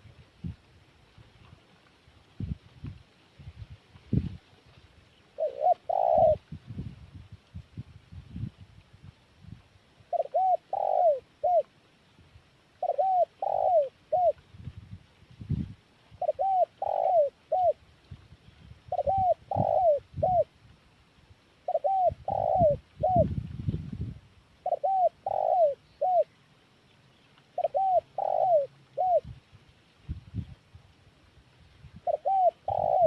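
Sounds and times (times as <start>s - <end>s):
dove cooing: 5.4s - 6.5s, 10.1s - 11.7s, 12.8s - 14.4s, 16.2s - 17.8s, 18.9s - 20.5s, 21.6s - 23.3s, 24.6s - 26.3s, 27.6s - 29.3s, 32.0s - 33.0s.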